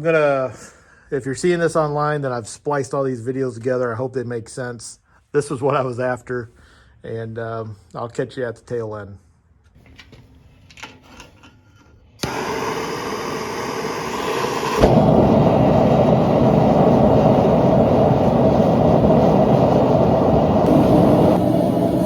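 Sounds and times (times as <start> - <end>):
forge rushing noise: 12.2 - 22.0.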